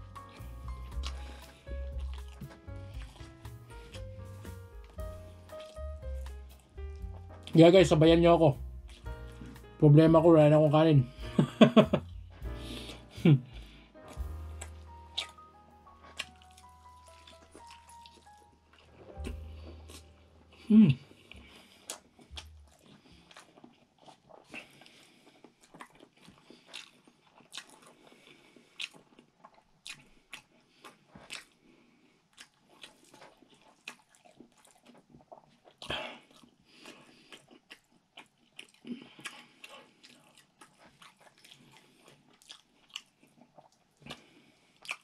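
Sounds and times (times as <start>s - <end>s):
person chewing food: 0.0s - 7.7s, 8.5s - 9.8s, 11.0s - 45.0s
wet mouth clicks and smacks: 0.4s - 7.5s, 14.2s - 15.5s, 16.1s - 18.4s, 21.8s - 24.6s, 44.8s - 45.0s.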